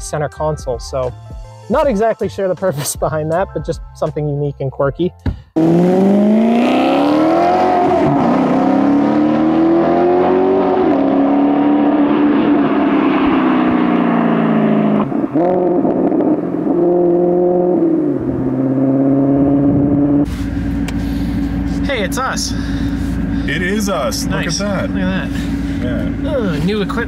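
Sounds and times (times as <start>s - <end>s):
car engine accelerating: 5.6s - 27.0s.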